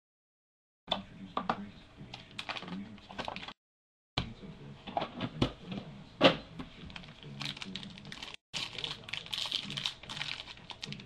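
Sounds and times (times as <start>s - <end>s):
packaging clicking and rustling: 2.2s - 3.6s, 6.8s - 11.0s.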